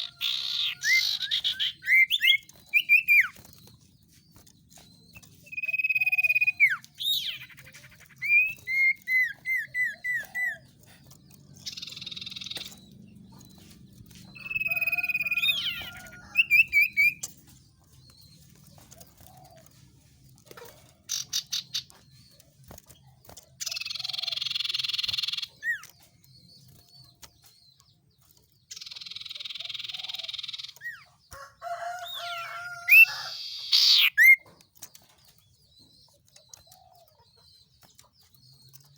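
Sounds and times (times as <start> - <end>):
harsh rasping bird calls: 0.0 - 17.4, 20.4 - 22.3, 23.6 - 26.2, 28.7 - 35.1.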